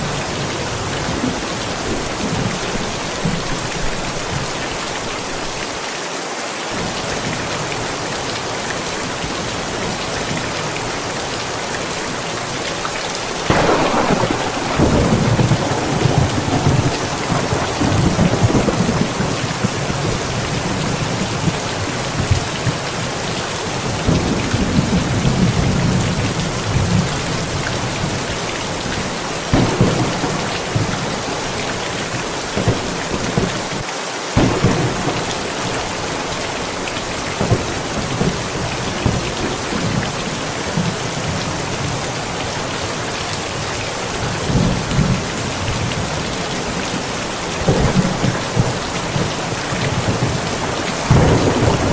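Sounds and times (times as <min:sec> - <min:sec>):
steady rain: 0:00.0 - 0:51.9
thunder rumbling: 0:13.4 - 0:33.8, 0:34.4 - 0:42.0, 0:44.2 - 0:51.9.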